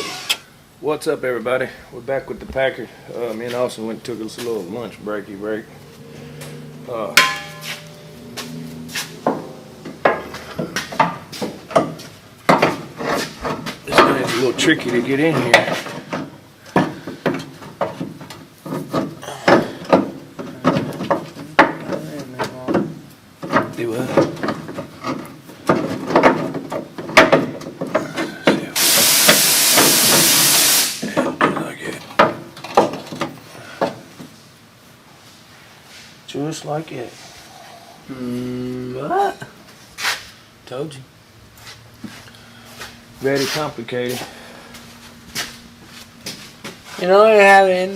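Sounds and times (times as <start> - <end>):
loud steady hiss: 0.0 - 6.3, 27.1 - 38.6
parts knocking and clattering: 6.4 - 34.4.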